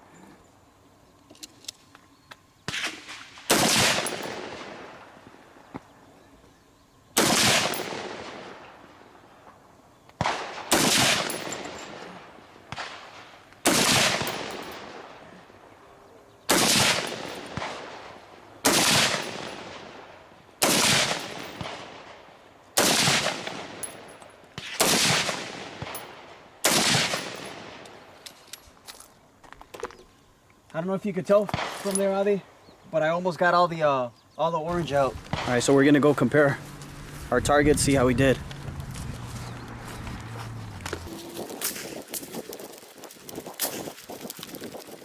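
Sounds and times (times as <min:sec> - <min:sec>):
gunshots with echoing decay: 0:02.7 - 0:05.2, 0:07.2 - 0:08.9, 0:10.2 - 0:15.5, 0:16.5 - 0:28.2, 0:31.5 - 0:32.6, 0:34.7 - 0:36.1.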